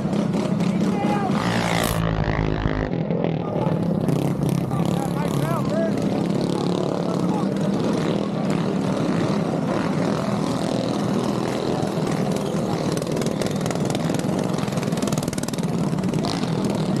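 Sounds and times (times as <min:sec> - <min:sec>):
minibike engine buzzing drone: 0:00.0 - 0:17.0.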